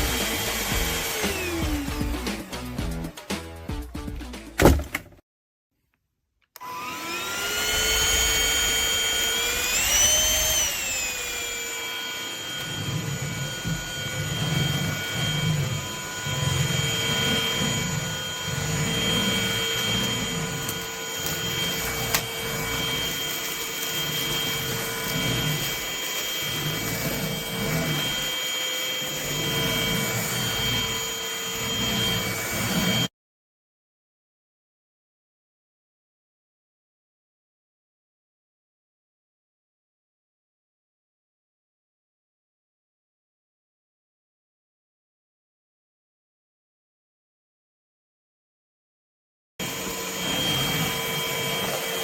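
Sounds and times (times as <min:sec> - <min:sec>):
vacuum cleaner motor whine: 0:00.0 - 0:02.6, 0:06.6 - 0:33.1, 0:49.6 - 0:52.0.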